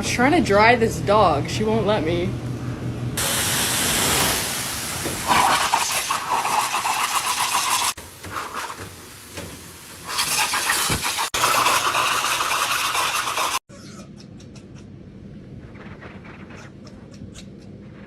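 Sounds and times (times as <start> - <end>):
blow dryer running: 3.1 - 6.3
low hum: 13.9 - 18.0.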